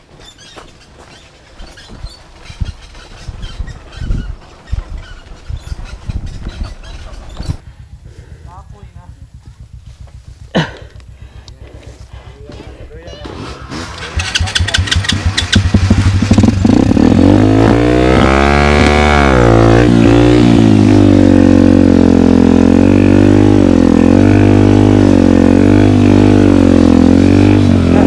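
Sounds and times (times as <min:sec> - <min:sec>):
dirt bike engine revving: 0:13.3 - 0:28.0.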